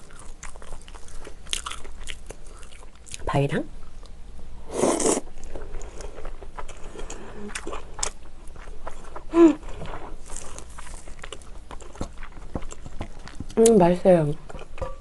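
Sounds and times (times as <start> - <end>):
close chewing: 0.0 - 3.2, 5.4 - 14.8
person humming: 9.3 - 9.6.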